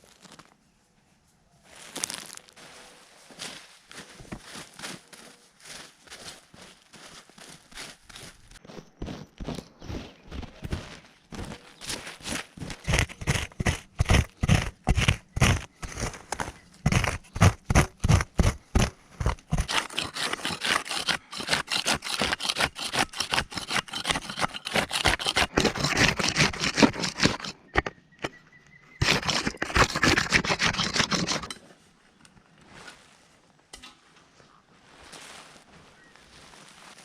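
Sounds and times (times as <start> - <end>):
fast scraping strokes: 11.9 - 28.4, 29.0 - 31.6.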